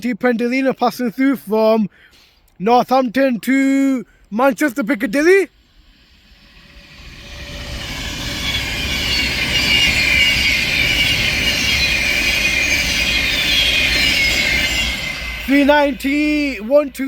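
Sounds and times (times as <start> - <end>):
train passing at speed: 5.4 - 17.0
high-pitched whines: 5.5 - 17.0.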